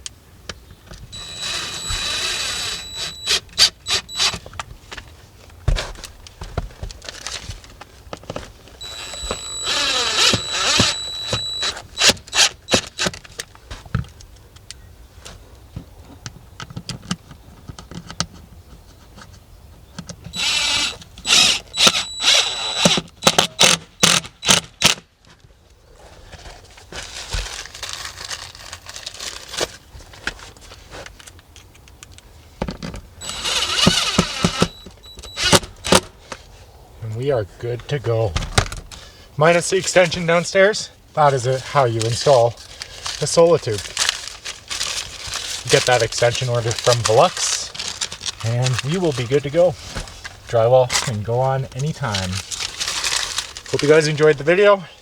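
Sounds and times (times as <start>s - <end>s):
drill short bursts: 1.1s - 4.4s, 8.8s - 13.1s, 20.4s - 24.8s, 33.2s - 36.1s
power drill whining: 1.1s - 4.5s, 8.8s - 13.2s, 20.3s - 24.6s, 33.2s - 36.1s.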